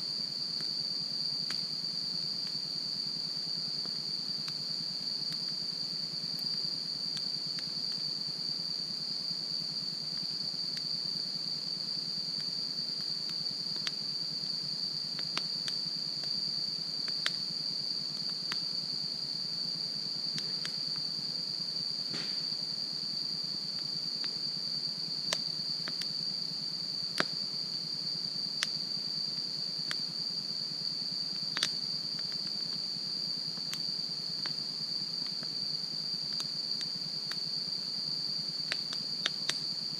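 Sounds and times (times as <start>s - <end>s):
insects trilling: 0.0s - 39.9s
campfire crackling and popping: 15.1s - 16.4s, 17.0s - 17.5s, 25.2s - 26.1s, 31.5s - 32.6s, 38.7s - 39.6s.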